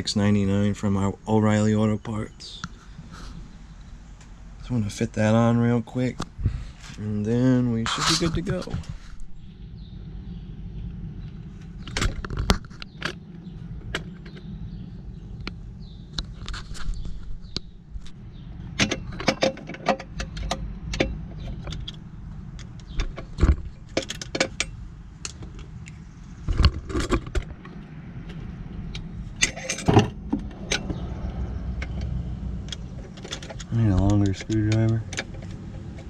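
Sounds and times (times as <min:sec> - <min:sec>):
steady low rumble: 0:00.0 - 0:19.3, 0:20.0 - 0:36.0
metallic clicks of tools: 0:28.9 - 0:36.0.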